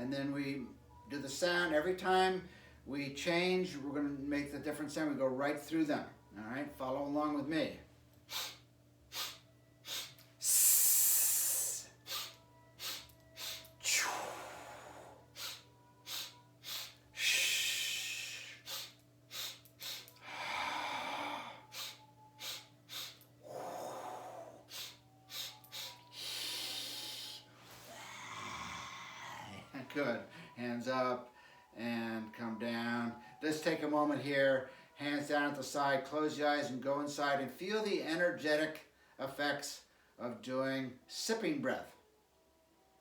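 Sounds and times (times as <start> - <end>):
man sipping sharp breaths: 8.3 - 14.1, 15.3 - 29.6
man exhaling long breath: 8.3 - 30.6.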